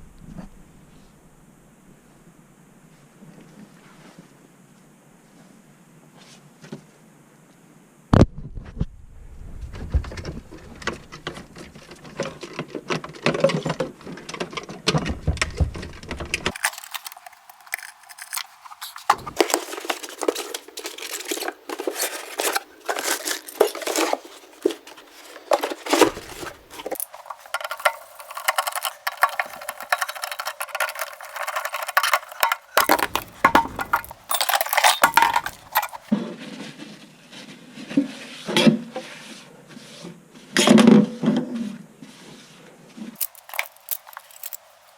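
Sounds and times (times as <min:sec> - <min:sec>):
hard objects clinking and clattering: 0:16.4 - 0:36.1, 0:43.2 - 0:44.9.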